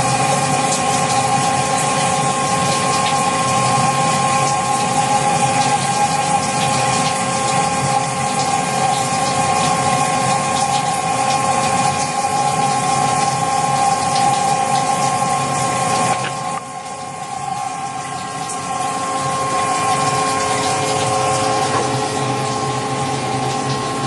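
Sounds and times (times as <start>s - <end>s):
rushing liquid flow: 0.0s - 24.0s
lathe machine whine: 17.3s - 24.0s.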